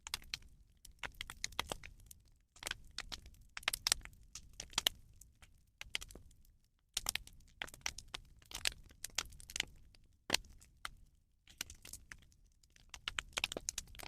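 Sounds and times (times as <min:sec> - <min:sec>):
bonfire crackling: 0:00.0 - 0:14.0.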